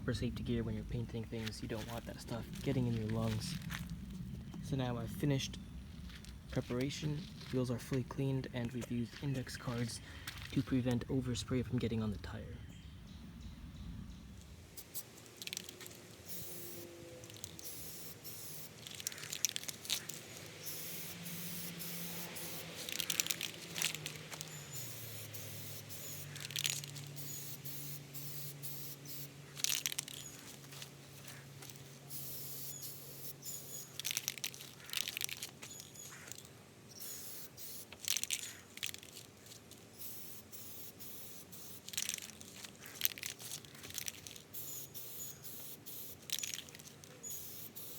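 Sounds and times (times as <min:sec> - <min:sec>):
aerosol paint spraying: 0:14.8 - 0:39.2, 0:39.9 - 0:47.9.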